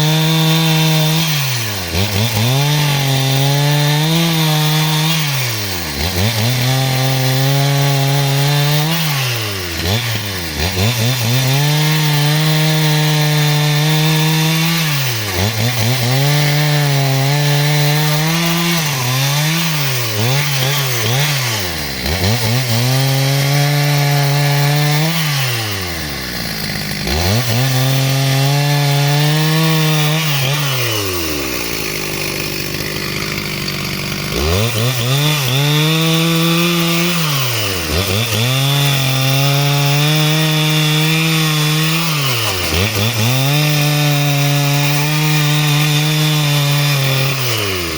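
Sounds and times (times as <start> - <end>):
chainsaw revving: 0.0 - 47.9.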